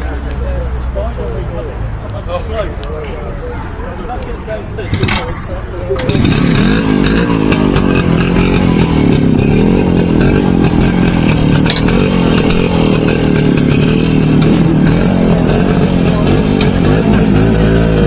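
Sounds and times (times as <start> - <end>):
motorcycle engine running: 4.9 - 18.0.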